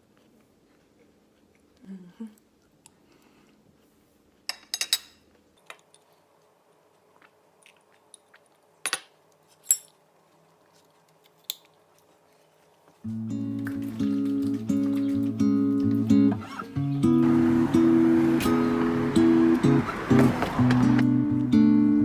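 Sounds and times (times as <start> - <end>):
cutlery clinking against dishes: 4.5 - 6.0.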